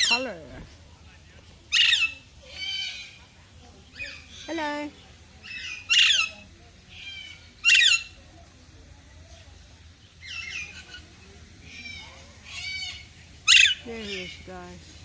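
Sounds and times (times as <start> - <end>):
parrots squawking: 0.0 - 0.7, 1.6 - 8.2, 10.2 - 14.5.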